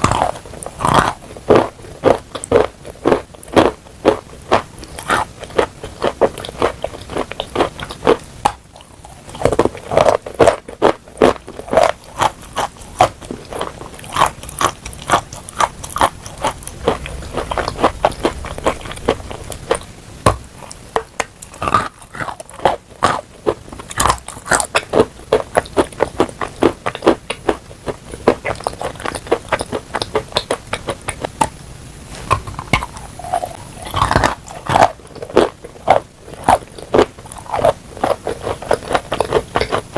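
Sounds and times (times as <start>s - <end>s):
chewing crunchy chalk: 0.0s - 19.9s, 32.2s - 39.9s.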